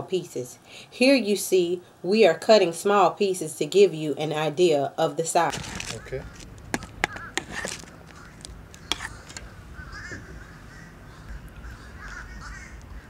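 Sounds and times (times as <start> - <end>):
faint bird calls: 5.8 - 13.0.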